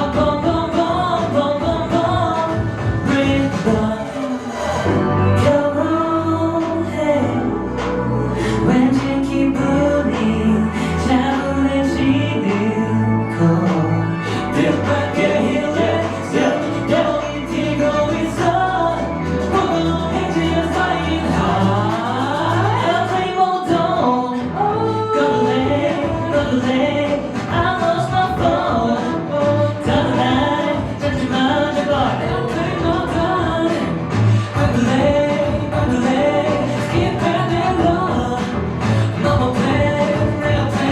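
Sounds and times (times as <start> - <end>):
pop song with sung vocals: 0.0 - 40.9.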